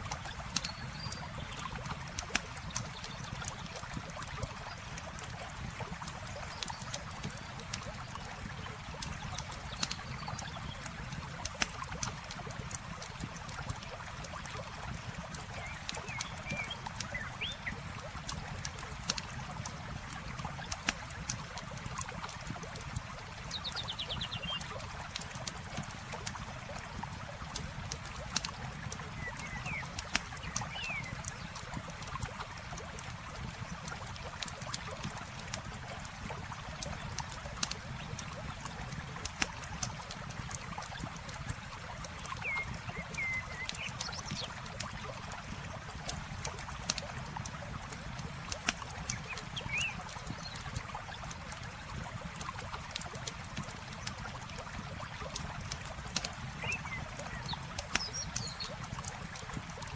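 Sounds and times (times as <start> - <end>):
campfire crackling and popping: 0.0 - 23.8, 24.4 - 59.9
flowing water trickling: 0.0 - 59.9.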